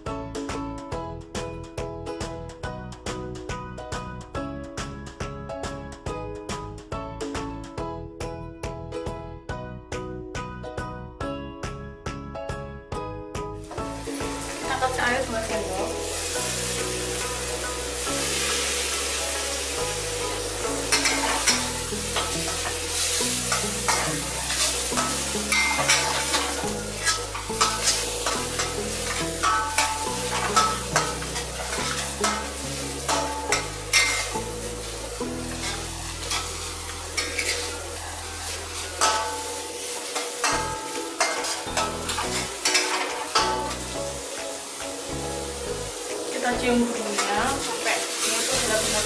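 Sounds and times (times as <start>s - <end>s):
paste sizzling in oil: 13.6s - 49.0s
metal spatula scraping a wok: 13.7s - 44.0s, 46.3s - 49.0s.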